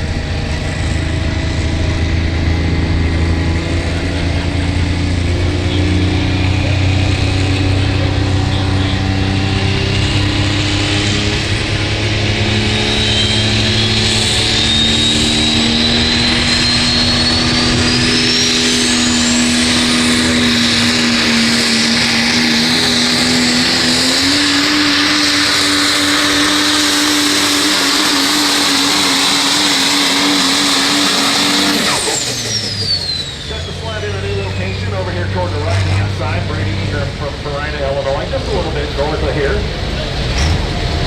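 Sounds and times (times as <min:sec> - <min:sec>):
diesel truck engine at full throttle: 0:00.0 - 0:41.0
high turbo whistle: 0:05.4 - 0:35.1.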